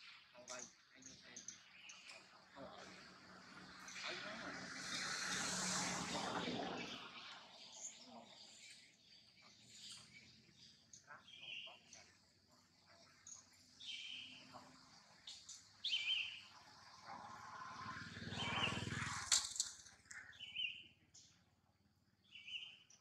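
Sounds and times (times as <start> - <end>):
bird chirping: 6.7 - 17.2, 17.8 - 19.0, 20.0 - 21.4, 22.2 - 23.0.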